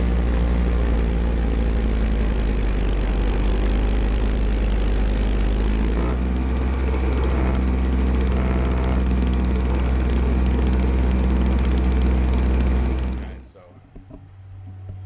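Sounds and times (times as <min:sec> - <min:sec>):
snowblower engine running: 0:00.0 - 0:13.6.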